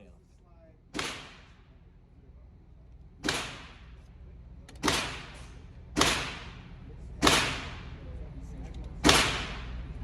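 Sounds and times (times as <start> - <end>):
pistol shots: 3.2 - 3.8, 4.8 - 5.4, 6.0 - 6.6, 7.2 - 7.8, 9.0 - 9.8.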